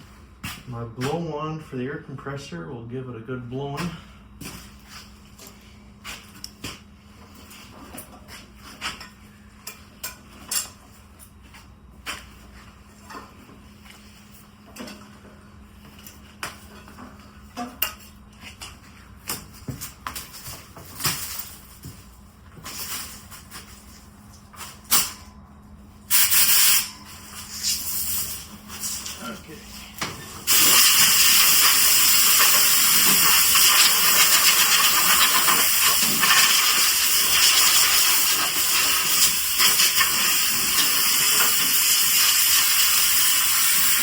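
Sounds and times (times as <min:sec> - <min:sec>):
steady low hum: 0:00.0 - 0:41.4
compressed air hiss: 0:26.1 - 0:26.9, 0:30.5 - 0:44.0.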